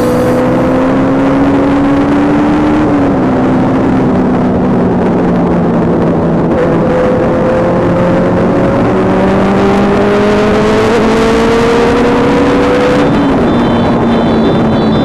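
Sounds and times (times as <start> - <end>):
motorcycle engine running: 0.0 - 2.1
road and wind noise: 0.0 - 15.0.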